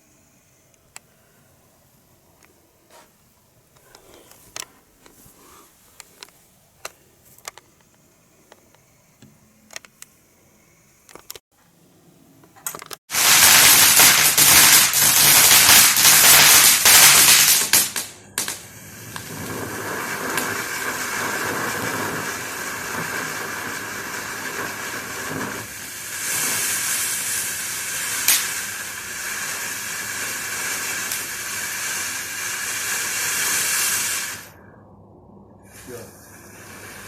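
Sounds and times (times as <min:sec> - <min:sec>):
firework crackling and hissing: 0:00.0 - 0:11.4, 0:12.6 - 0:34.6, 0:35.6 - 0:37.0
sharp firework crack: 0:12.6 - 0:34.6.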